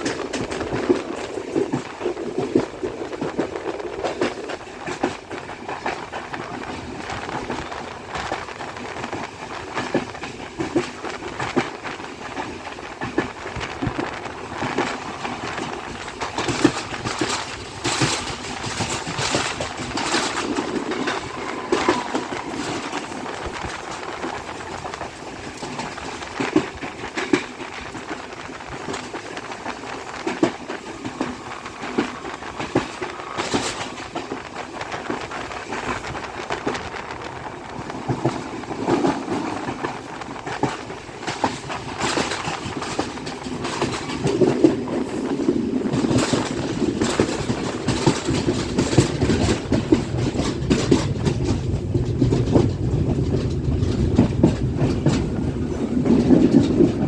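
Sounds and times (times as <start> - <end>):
train rumble and rattle: 0.0 - 57.0
train wheels clicking on rails: 0.0 - 57.0.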